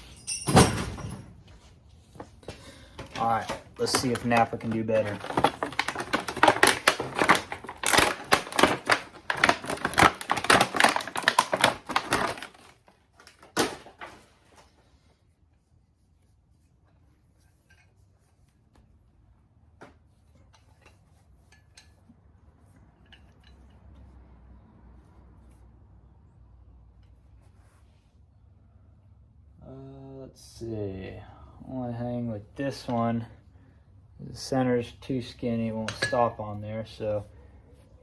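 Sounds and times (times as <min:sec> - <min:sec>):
metal tool parts rattling: 0:00.0 - 0:01.2
metal clank: 0:00.0 - 0:01.4.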